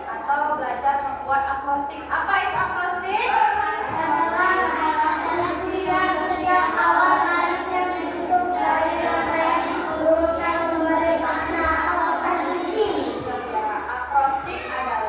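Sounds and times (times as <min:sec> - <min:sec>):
children chanting in chorus: 0:03.5 - 0:13.7.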